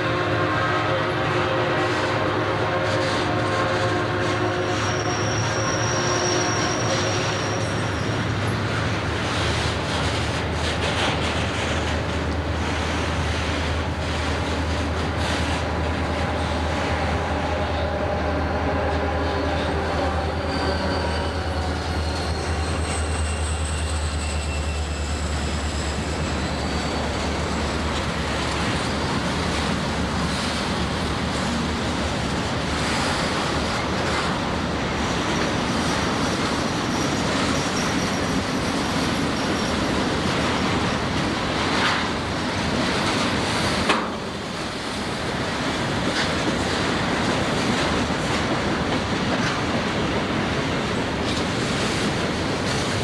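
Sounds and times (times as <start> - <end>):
locomotive engine hum: 0.0 - 53.0
high wheel squeal: 4.6 - 9.6, 15.2 - 30.8, 34.9 - 42.0.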